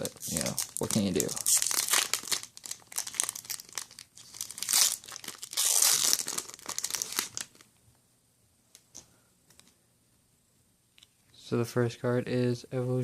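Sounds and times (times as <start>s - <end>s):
foil pack crinkling and tearing: 0.0s - 7.7s.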